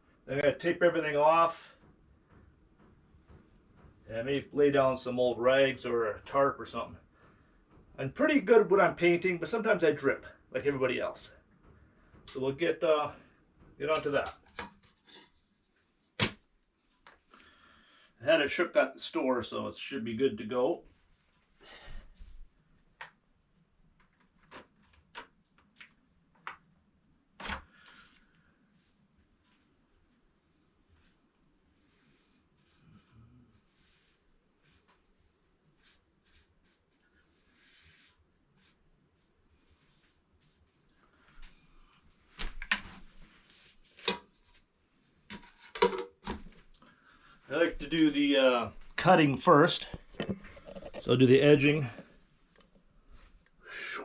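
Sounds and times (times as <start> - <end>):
hard objects knocking: 45.3 - 46.4, 50.0 - 51.1.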